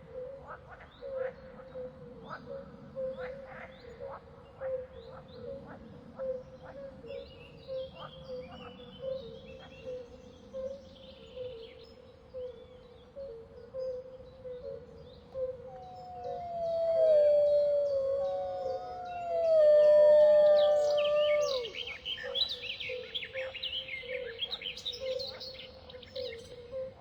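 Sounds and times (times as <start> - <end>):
bird chirping: 15.8 - 23.8
bird warbling: 16.0 - 22.0.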